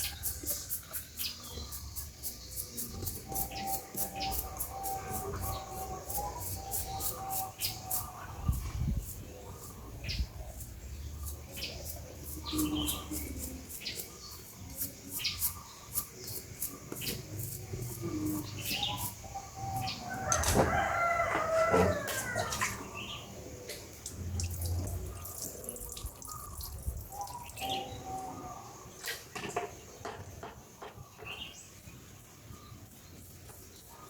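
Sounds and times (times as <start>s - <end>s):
rooster crowing: 19.9s - 22.9s.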